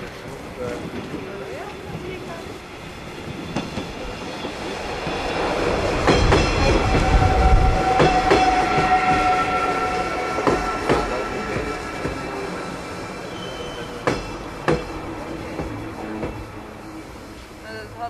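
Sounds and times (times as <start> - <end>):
train rumbling past: 0.0 - 18.0
high whine: 4.6 - 14.0.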